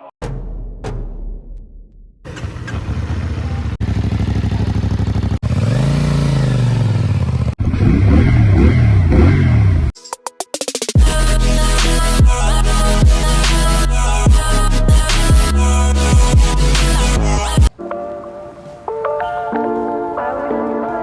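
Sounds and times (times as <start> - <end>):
motorcycle engine revving: 2.3 - 9.9.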